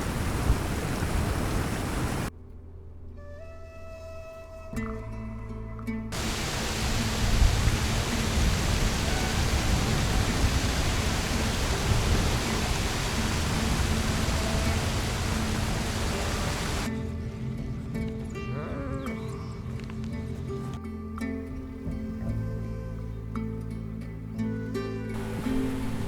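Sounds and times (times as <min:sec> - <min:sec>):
loud steady rushing noise: 0:00.0 - 0:02.3, 0:06.2 - 0:16.9, 0:25.2 - 0:26.0.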